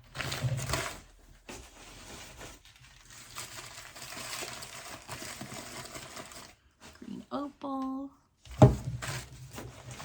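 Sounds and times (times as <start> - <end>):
packing material rustling: 0.0 - 7.2.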